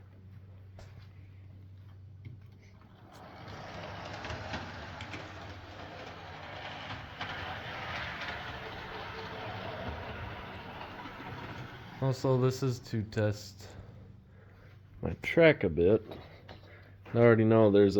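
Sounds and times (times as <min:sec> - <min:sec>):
model train whirring rattle: 0:02.8 - 0:13.8.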